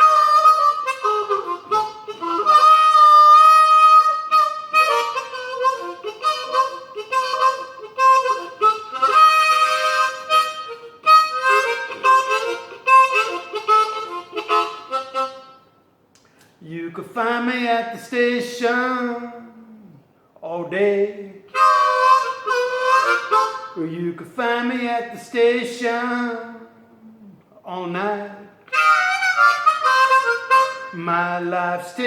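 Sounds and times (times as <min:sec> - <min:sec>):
blues harmonica solo: 0:00.0 - 0:15.9, 0:21.5 - 0:24.0, 0:28.6 - 0:32.0.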